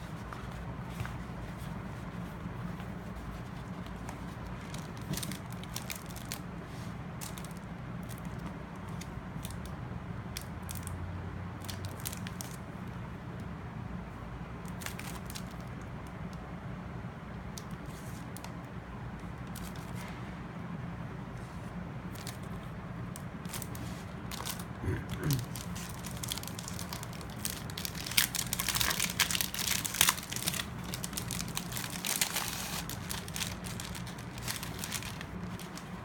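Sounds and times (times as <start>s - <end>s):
steady low hum: 15.8s - 36.0s.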